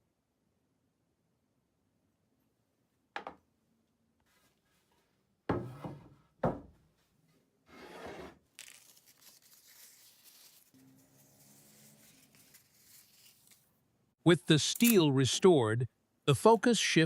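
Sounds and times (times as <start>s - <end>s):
objects knocking and thudding: 5.5s - 6.8s.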